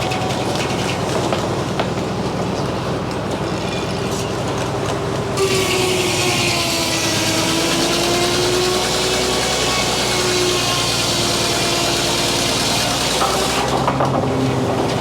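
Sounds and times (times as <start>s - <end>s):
circular saw cutting log: 0.0s - 1.9s, 5.3s - 15.0s.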